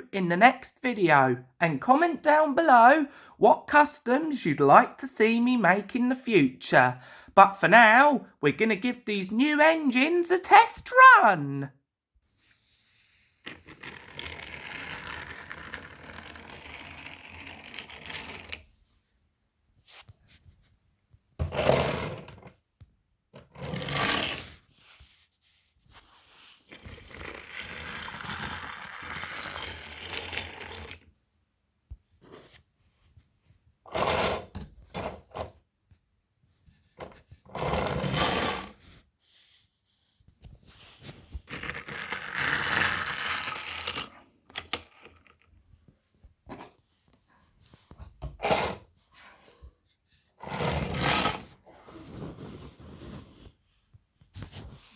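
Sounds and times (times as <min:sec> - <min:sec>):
toy train rattling on track: 0:41.7 - 0:44.1.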